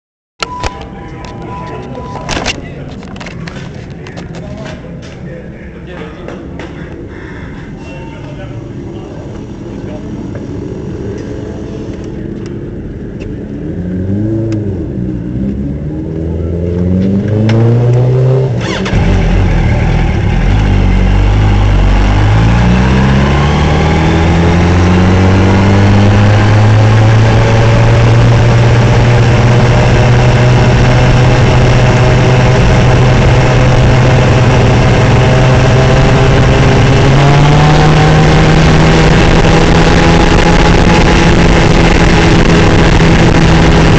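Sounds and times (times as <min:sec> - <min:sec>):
racing motorcycle engine revving: 0:10.3 - 0:43.9.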